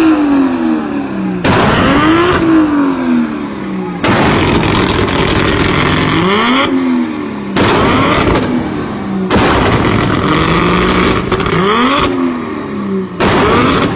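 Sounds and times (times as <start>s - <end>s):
car accelerating hard: 0.0s - 13.9s
exhaust crackling pops: 4.0s - 6.4s, 9.3s - 12.2s.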